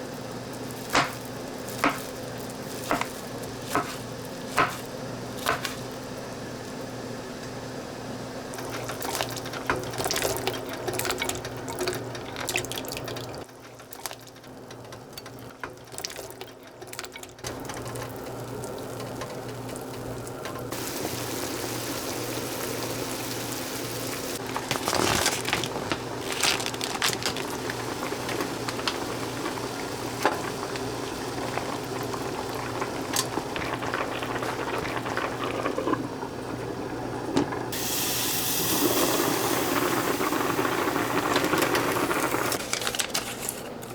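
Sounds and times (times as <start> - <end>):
water pouring and splashing: 8.6 - 14.6, 15.8 - 42.6.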